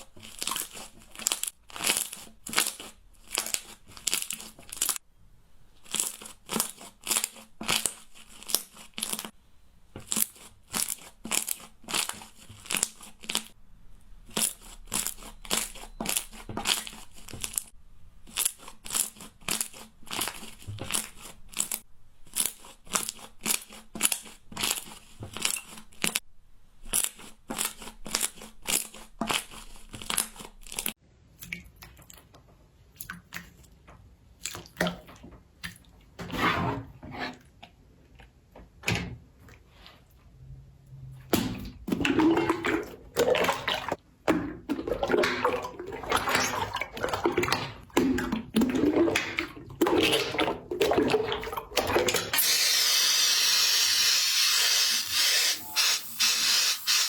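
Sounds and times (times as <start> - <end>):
crunchy slime crackling: 0.0 - 5.0, 5.8 - 9.4, 10.0 - 13.6, 26.8 - 31.0.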